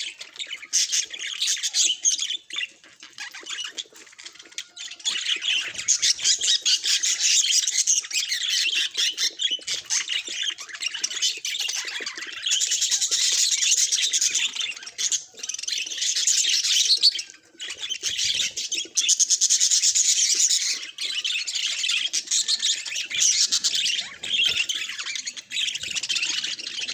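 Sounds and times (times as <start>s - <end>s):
budgies chattering and warbling: 0.0s - 26.9s.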